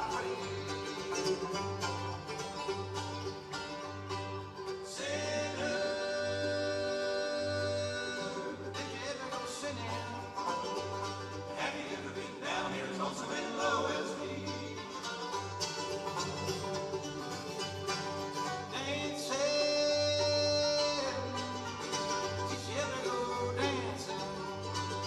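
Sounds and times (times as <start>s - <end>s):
person singing: 0.0s - 1.5s, 4.9s - 10.6s, 18.6s - 21.6s, 22.4s - 24.7s
banjo: 0.0s - 25.0s
guitar: 0.0s - 25.0s.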